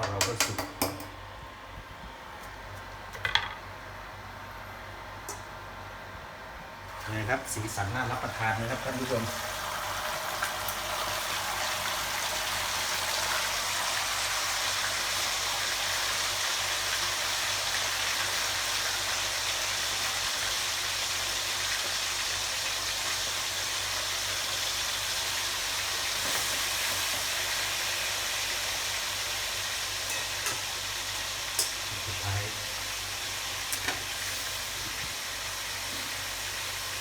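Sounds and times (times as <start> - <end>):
meat sizzling in hot oil: 6.9 - 37.0.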